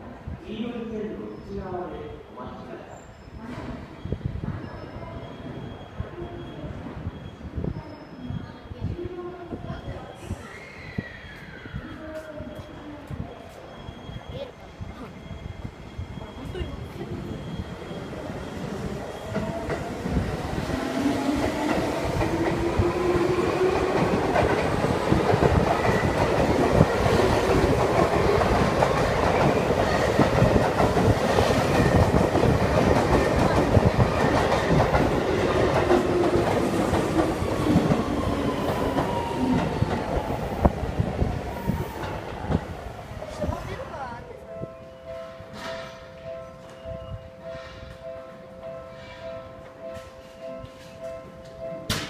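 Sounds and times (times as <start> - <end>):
train humming tone: 14.6 - 52.0.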